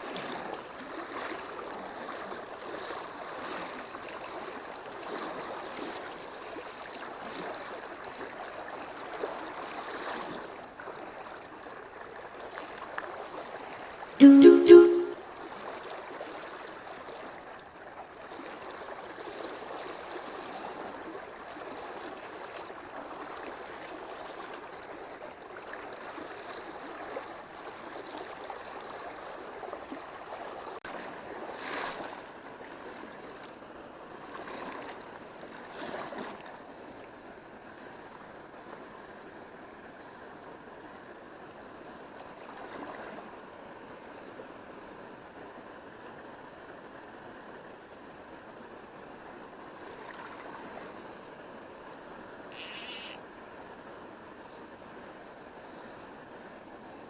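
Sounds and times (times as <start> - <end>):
water splashes: 0.0 - 14.0, 34.3 - 37.0.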